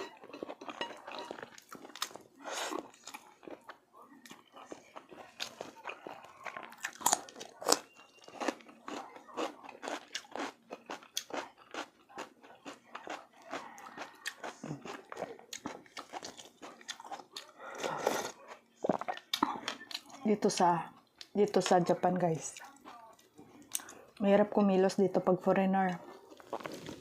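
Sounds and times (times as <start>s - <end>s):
wet chewing and mouth smacks: 0.3s - 20.2s.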